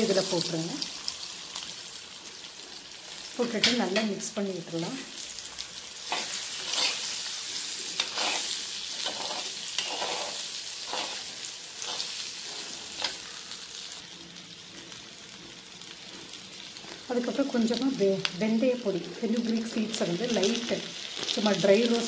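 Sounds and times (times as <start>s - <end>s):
food sizzling in hot oil: 0.0s - 22.0s
metal spoon scraping: 6.0s - 13.3s.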